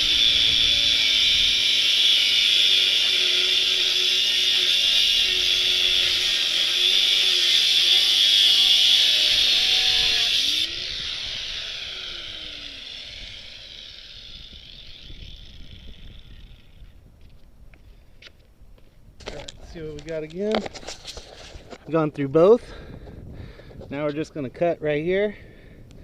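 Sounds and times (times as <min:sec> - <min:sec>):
power tool cutting steel tube: 0:00.0 - 0:16.8
power tool winding down: 0:00.0 - 0:17.0.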